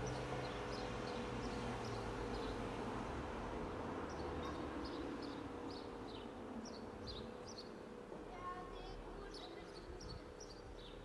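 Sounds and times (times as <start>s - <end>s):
small birds chirping: 0.0s - 2.7s, 4.0s - 7.9s, 8.8s - 11.0s.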